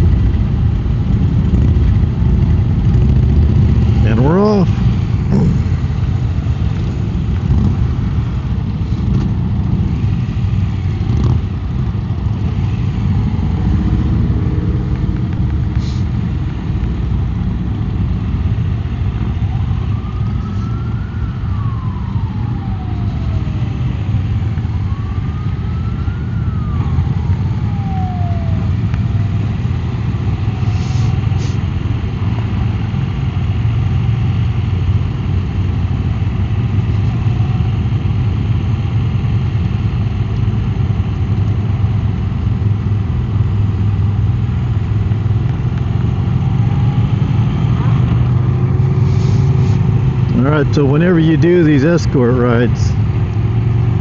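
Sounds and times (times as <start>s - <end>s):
motorcycle engine running: 0.0s - 19.3s
siren rising and falling: 19.3s - 29.5s.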